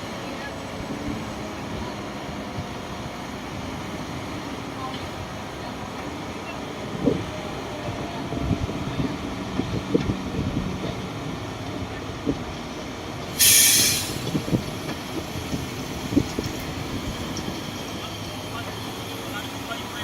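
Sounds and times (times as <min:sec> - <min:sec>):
diesel earthmoving machinery running: 0:00.0 - 0:20.0
air brake hiss: 0:13.3 - 0:14.4.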